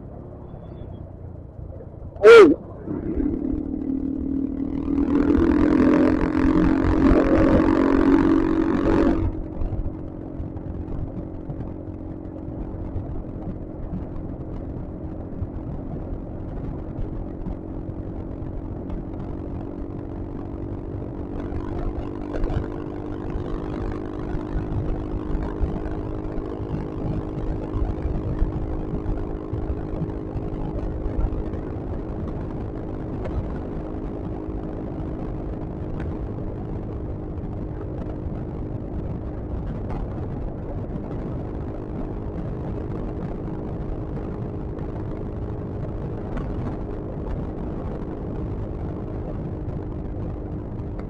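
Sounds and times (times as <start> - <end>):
scooter engine running: 0.0 - 51.0
wind and road noise: 0.0 - 51.0
loud rush of noise: 2.1 - 9.4.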